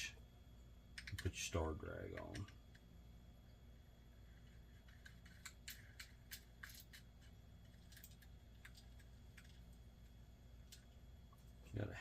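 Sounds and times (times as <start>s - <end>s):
small metal parts clicking: 4.8s - 9.6s.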